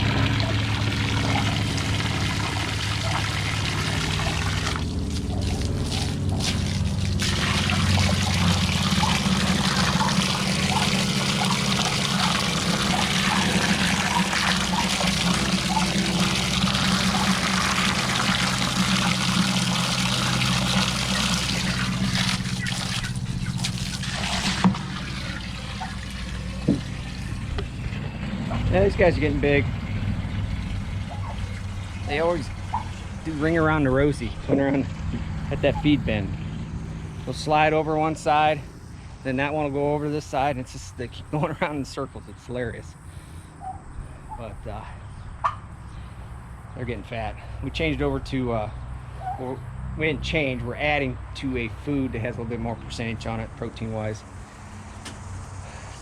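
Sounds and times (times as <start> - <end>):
water running from hose: 0.0 - 27.8, 30.6 - 34.2
low steady hum: 0.0 - 56.0.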